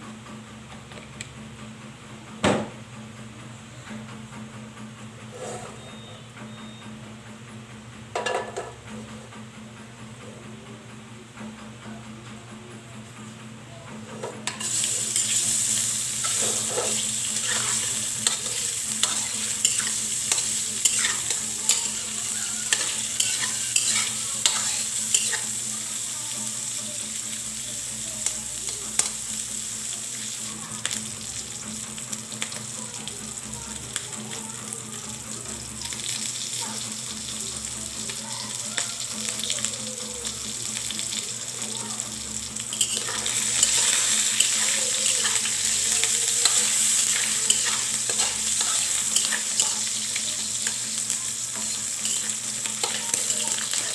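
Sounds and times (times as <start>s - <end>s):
spatula scraping a pan: 5.3s - 5.8s, 14.5s - 25.8s, 42.7s - 53.9s
food sizzling in hot oil: 14.4s - 53.9s.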